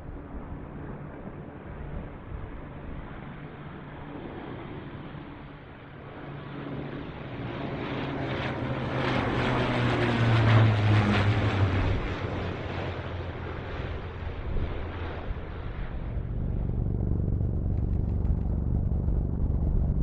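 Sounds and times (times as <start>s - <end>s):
jet flying low past: 0.4s - 20.0s.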